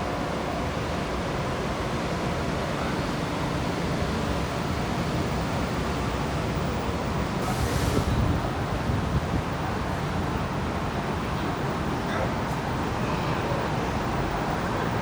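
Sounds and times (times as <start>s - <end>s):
brief loud hiss: 7.4s - 8.3s.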